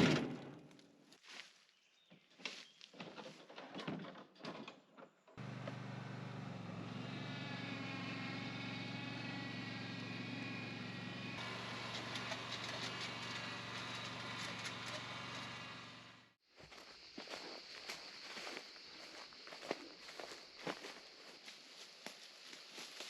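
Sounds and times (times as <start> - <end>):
small motor humming: 5.4 - 16.3.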